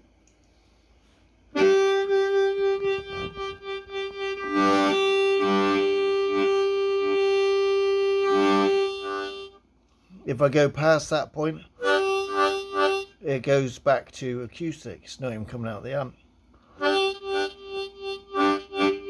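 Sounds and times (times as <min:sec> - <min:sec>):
amplified harmonica: 0:01.5 - 0:09.6, 0:11.8 - 0:13.4, 0:16.7 - 0:19.0.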